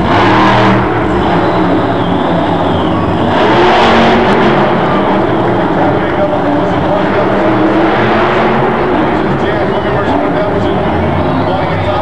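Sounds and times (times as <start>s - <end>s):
monster truck engine revving: 0.0s - 12.0s.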